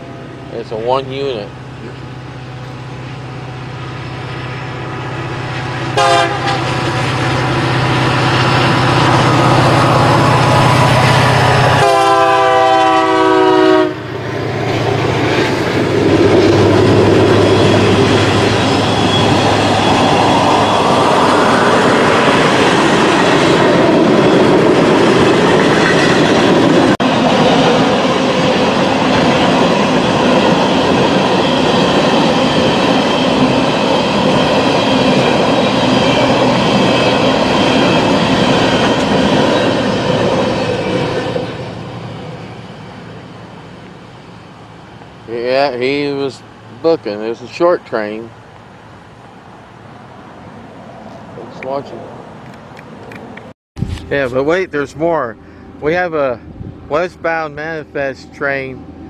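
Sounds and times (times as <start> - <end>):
wheels on rail: 0.0 - 54.1
diesel locomotive engine drone: 0.0 - 59.0
train horn blasts: 5.9 - 6.8, 11.4 - 14.1.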